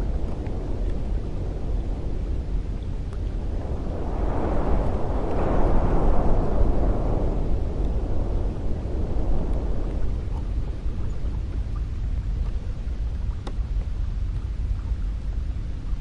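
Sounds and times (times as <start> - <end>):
wind blowing: 0.0 - 16.0.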